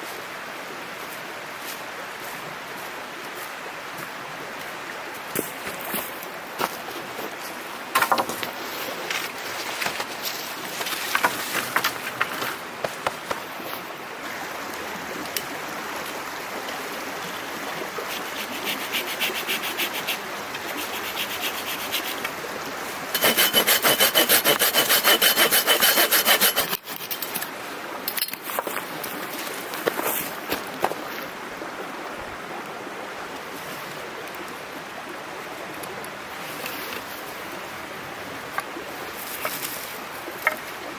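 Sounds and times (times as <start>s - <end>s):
knocks of handling wood: 7.9s - 13.4s
hand saw cutting wood: 18.1s - 22.3s, 23.1s - 27.4s.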